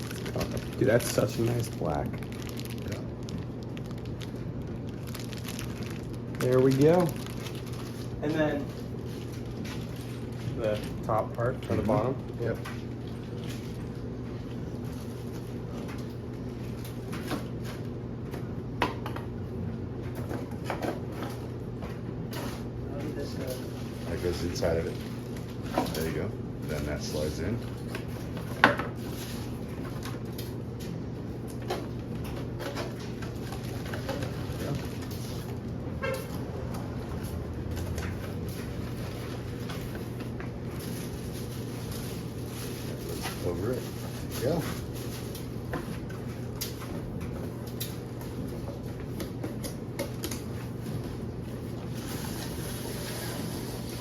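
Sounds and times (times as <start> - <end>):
packaging rustling: 0.0 - 11.2, 31.4 - 36.4, 37.0 - 49.1.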